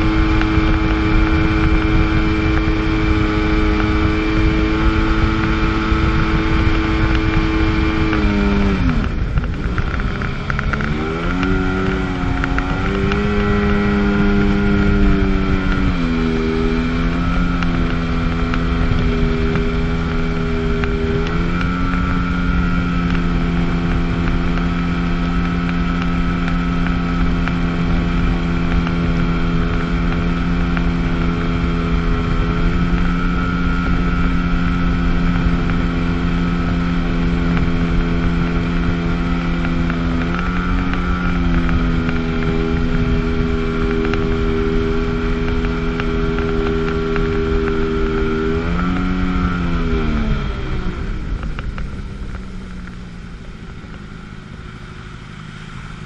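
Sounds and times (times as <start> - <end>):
jet ski engine running: 0.0 - 56.0
rushing water noise: 0.0 - 56.0.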